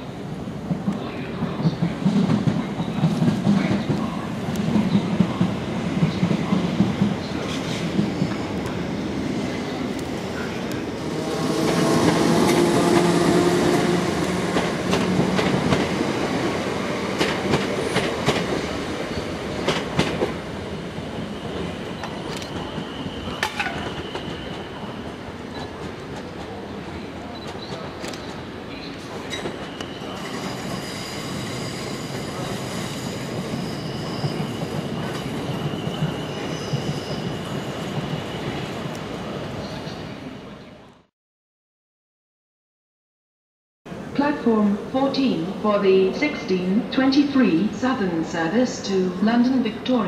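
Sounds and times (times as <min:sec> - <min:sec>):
high wheel squeal: 0:29.3 - 0:38.6.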